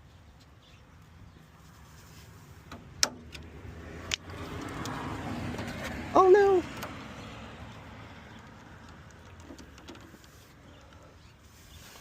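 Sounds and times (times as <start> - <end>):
sharp clicks: 2.7 - 5.0.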